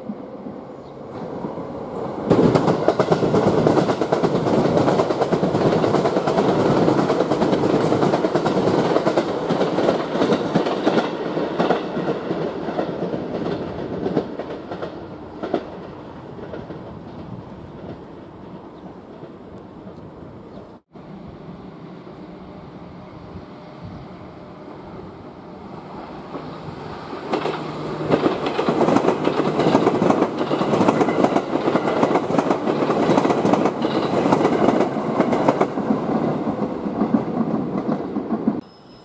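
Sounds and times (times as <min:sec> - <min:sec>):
electric train running past: 0:00.0 - 0:39.0
wheels clattering over rail joints: 0:27.2 - 0:35.9.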